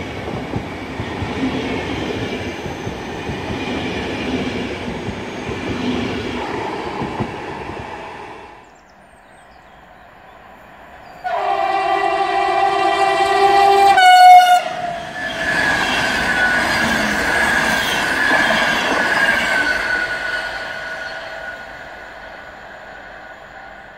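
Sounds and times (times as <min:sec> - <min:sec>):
locomotive horn blast: 0:11.2 - 0:15.0.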